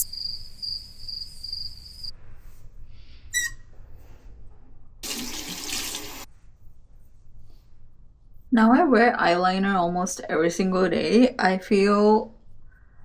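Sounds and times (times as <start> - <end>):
tap water running: 5.0 - 6.3.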